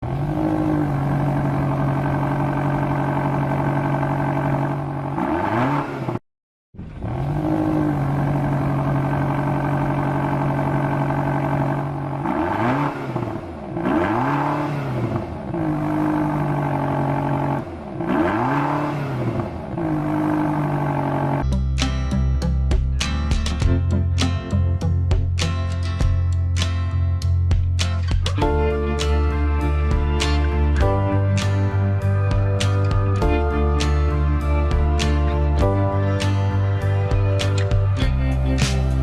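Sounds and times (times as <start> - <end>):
car engine revving: 0.0 - 6.2, 6.8 - 21.4.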